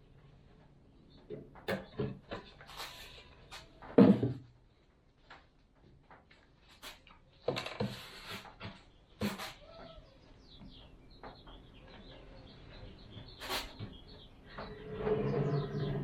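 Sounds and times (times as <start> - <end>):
scraping rustle: 14.5 - 16.0.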